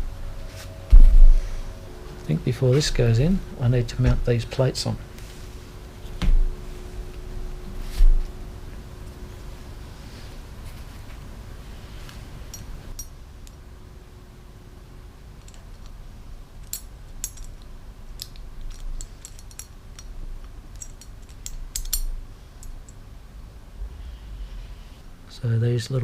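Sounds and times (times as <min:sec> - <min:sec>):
low steady hum: 0:00.0 - 0:26.0
small metal parts clicking: 0:15.4 - 0:16.0, 0:16.6 - 0:23.0.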